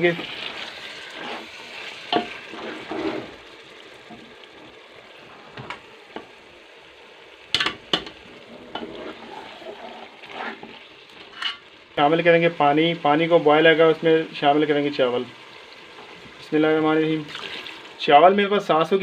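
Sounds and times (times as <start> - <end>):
wooden spoon scraping a pot: 0.0 - 3.4, 8.2 - 11.7
food sizzling in a pot: 0.0 - 19.0.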